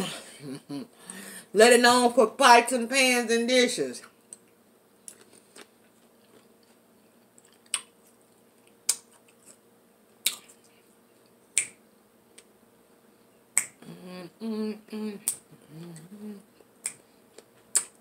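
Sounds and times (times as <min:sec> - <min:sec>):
person chewing with mouth clicks: 0:04.3 - 0:09.6, 0:10.2 - 0:11.7, 0:15.2 - 0:18.0.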